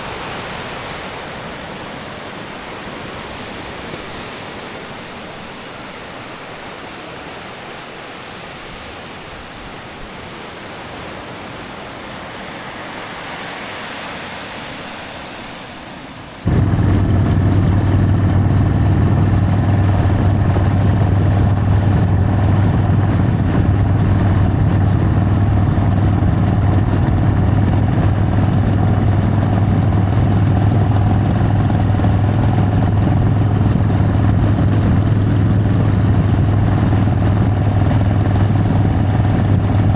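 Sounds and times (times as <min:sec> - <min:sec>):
rushing water: 0:00.0 - 0:10.0
motorcycle engine running: 0:16.5 - 0:39.9.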